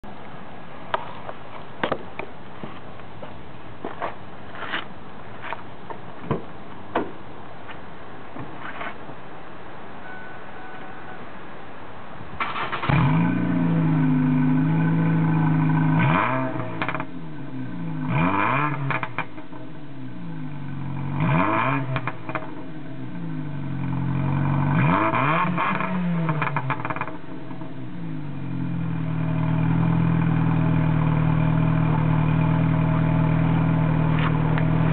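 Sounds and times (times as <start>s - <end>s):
car engine starting and revving: 12.4s - 34.9s.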